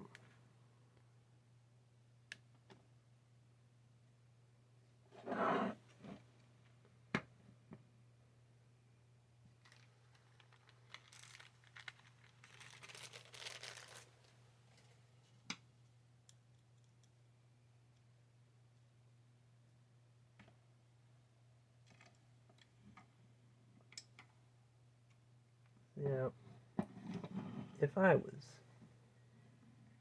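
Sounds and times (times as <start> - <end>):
hands rustling plastic parts: 9.6 - 15.0.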